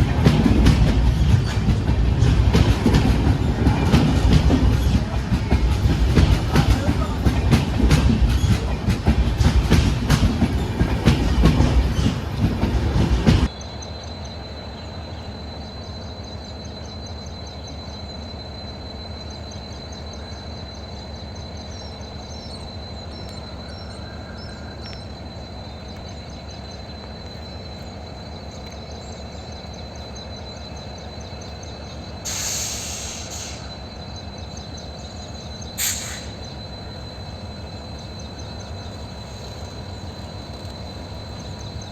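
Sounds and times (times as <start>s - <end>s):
steady train rumble: 0.0s - 41.9s
train wheels clicking over rail joints: 0.0s - 41.9s
short hissing bursts: 32.2s - 33.7s, 35.8s - 36.4s.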